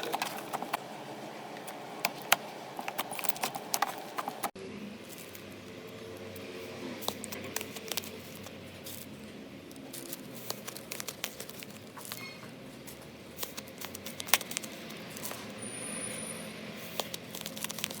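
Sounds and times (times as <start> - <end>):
slime crackling and popping: 9.8 - 15.4, 16.8 - 18.0.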